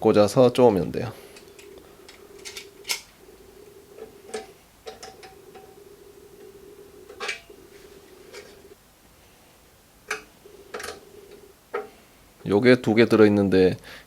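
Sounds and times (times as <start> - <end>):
faint steady hum: 0.0 - 14.0
parts clicking and knocking: 1.3 - 3.2, 4.0 - 5.8.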